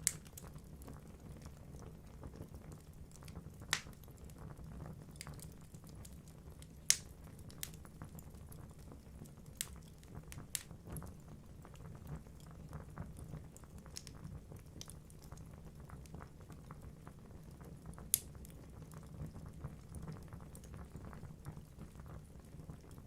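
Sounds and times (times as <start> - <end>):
fire burning in a fireplace: 0.0 - 23.0
logs crackling and popping: 0.0 - 23.0.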